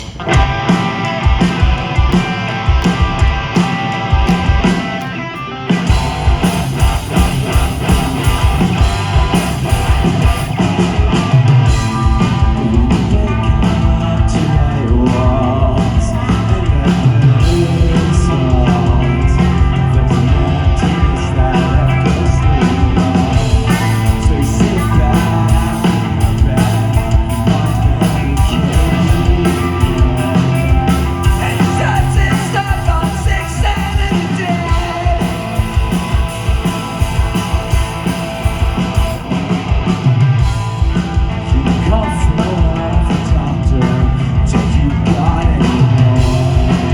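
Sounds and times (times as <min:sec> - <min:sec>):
drums: 0:00.0 - 0:46.9
guitars: 0:00.0 - 0:46.9
person singing: 0:12.0 - 0:36.8.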